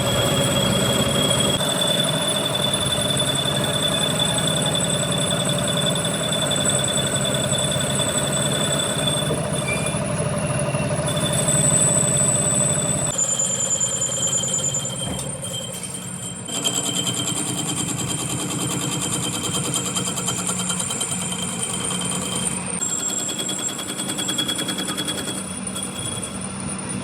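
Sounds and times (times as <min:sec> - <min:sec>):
machinery pulsing and whining: 0:00.0 - 0:16.6.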